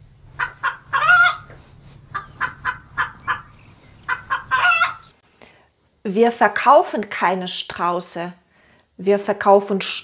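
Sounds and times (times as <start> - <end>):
steady low hum: 0.0 - 6.0
birds clucking: 0.3 - 5.2.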